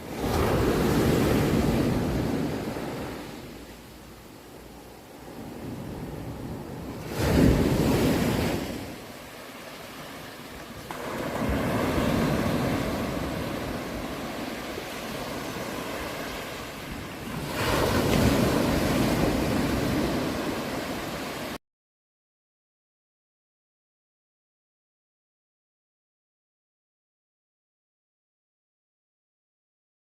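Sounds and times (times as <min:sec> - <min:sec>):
sea waves washing onto shore: 0:00.0 - 0:21.6.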